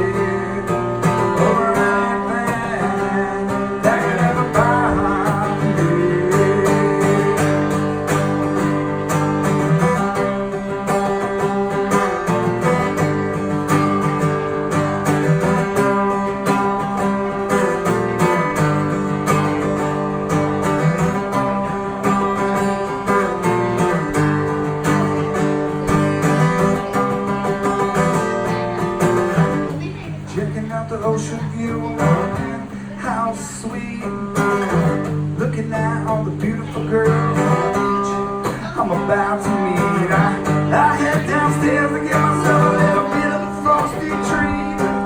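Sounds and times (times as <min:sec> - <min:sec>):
acoustic guitar strumming chords: 0:00.0 - 0:45.0.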